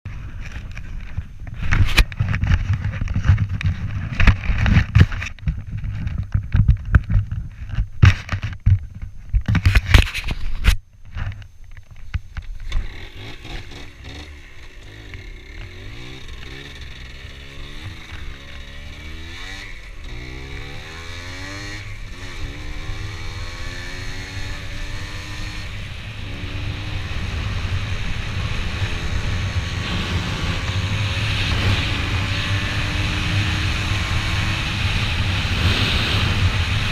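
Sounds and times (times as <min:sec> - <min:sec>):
loud bumps and rumbles: 0:00.4 - 0:10.4
vehicle engine revving: 0:12.7 - 0:36.9.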